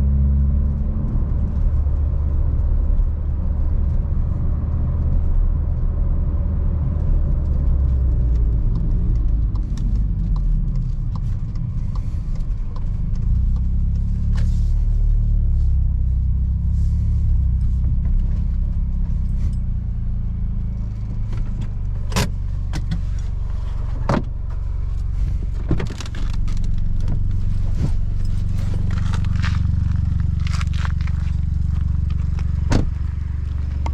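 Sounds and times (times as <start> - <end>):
car engine low rumble: 0.0 - 33.9
sharp clicks and rattles: 20.6 - 33.9.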